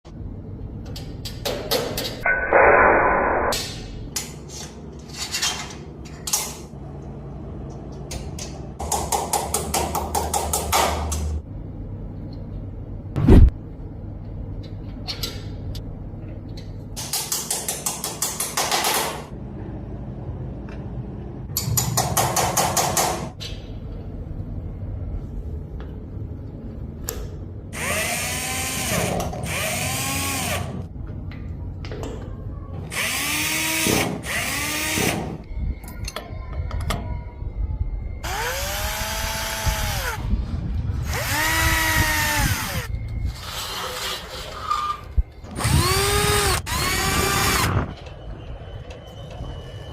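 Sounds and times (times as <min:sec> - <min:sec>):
power drill spinning: 0:27.8 - 0:30.8, 0:32.9 - 0:35.0, 0:38.2 - 0:40.2, 0:41.0 - 0:43.6, 0:45.5 - 0:47.9.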